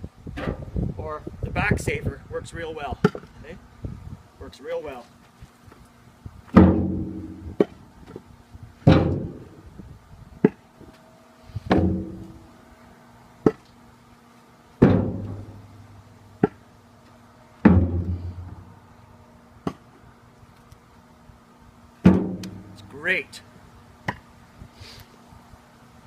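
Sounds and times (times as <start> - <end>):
firewood thudding into steel bucket: 6.5 - 7.8, 8.8 - 9.5, 11.7 - 12.4, 14.8 - 15.6, 17.6 - 18.7, 22.0 - 22.8
sharp knock: 6.6 - 7.4, 22.0 - 22.8.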